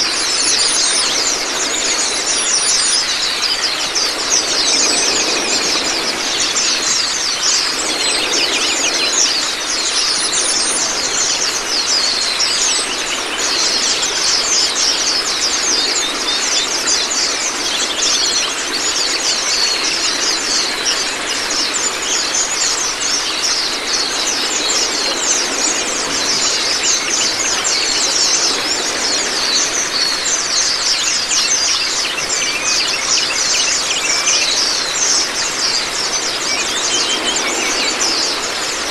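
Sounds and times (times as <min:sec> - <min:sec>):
running water splashing: 0:00.0 - 0:38.9.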